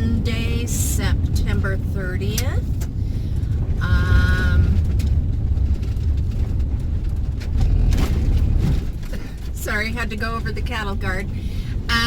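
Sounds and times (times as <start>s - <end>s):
van engine and road rumble: 0.0s - 12.0s.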